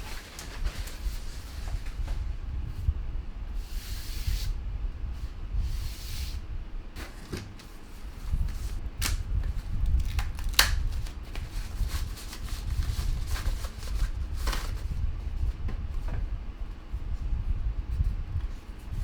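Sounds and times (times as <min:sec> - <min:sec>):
packaging rustling and scraping: 0:00.0 - 0:02.3, 0:07.0 - 0:15.0.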